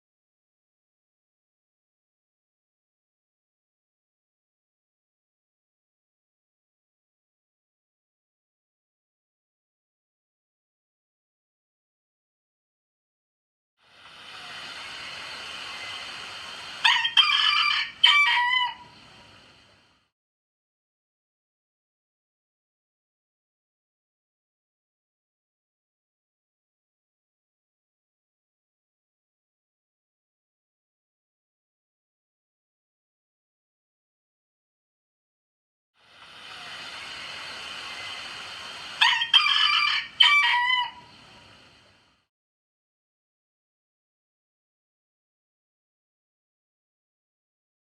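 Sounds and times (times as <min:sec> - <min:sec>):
background hiss: 0:13.8 - 0:18.1, 0:36.0 - 0:40.3
rooster crowing: 0:16.8 - 0:19.0, 0:39.0 - 0:41.1.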